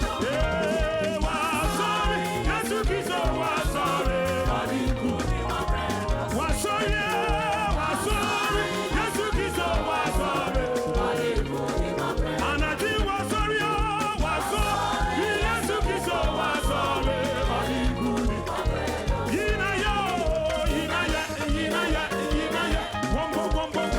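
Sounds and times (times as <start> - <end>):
upbeat gospel music: 0.0 - 23.9.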